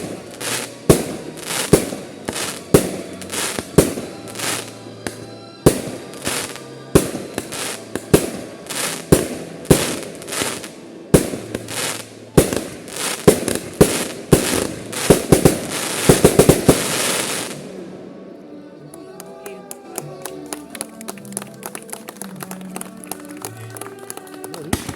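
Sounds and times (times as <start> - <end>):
fireworks bangs: 0.0 - 17.6
fireworks crackling hiss: 0.0 - 17.8.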